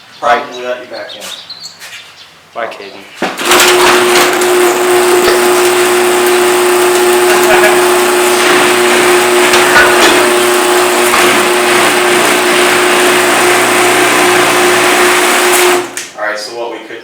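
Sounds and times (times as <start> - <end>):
door rattling in tracks: 3.4 - 16.1
garage door motor hum: 3.4 - 16.2.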